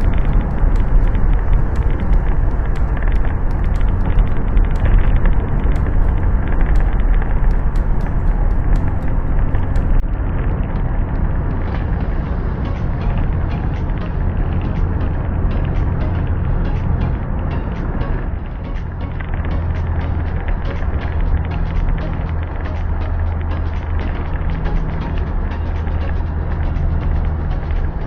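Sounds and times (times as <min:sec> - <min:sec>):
faint sharp ticks: 0:00.0 - 0:10.0
vehicle rumble in motion: 0:00.0 - 0:28.0.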